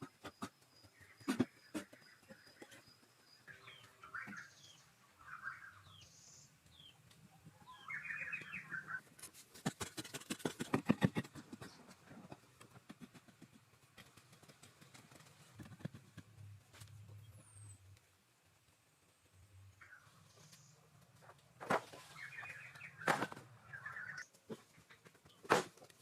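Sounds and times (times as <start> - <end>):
birds chirping: 0.0 - 9.1, 19.7 - 21.3, 21.9 - 25.0.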